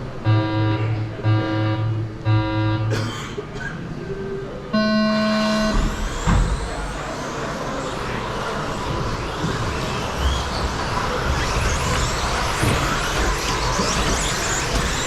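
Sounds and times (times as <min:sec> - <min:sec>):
race-start tone beeping: 0:00.2 - 0:02.9
electric motors whining: 0:04.8 - 0:15.0
tyres rushing on track: 0:05.6 - 0:15.0.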